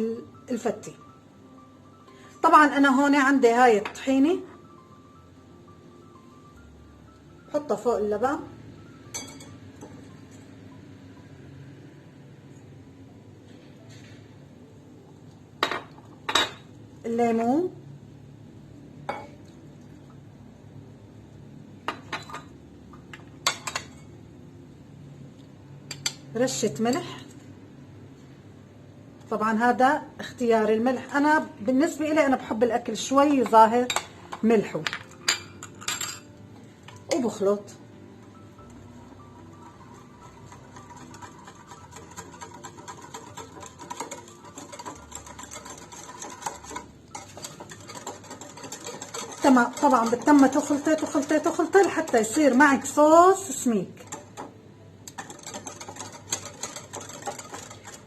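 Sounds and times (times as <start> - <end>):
dishes and glassware clinking: 9.1 - 10.1, 15.6 - 16.7, 19.1 - 19.4, 21.9 - 22.5, 23.1 - 24.1, 34.8 - 36.3
utensil stirring sauce in a bowl: 38.2 - 58.0.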